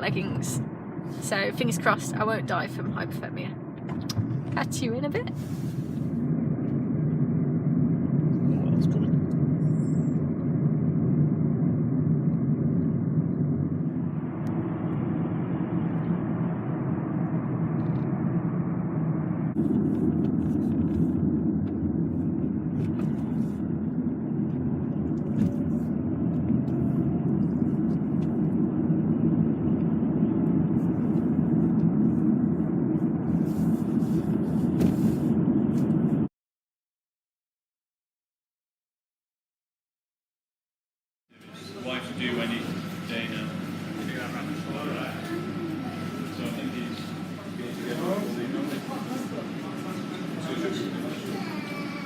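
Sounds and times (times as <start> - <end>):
car road and engine rumble: 0.0 - 36.3.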